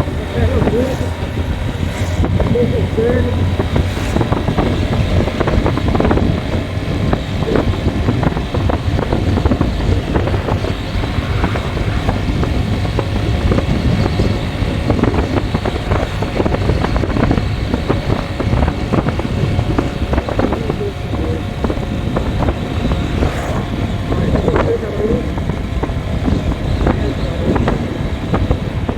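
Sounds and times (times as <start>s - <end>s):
vehicle engine and road rumble: 0.0s - 28.9s
wind buffeting microphone: 0.0s - 28.9s.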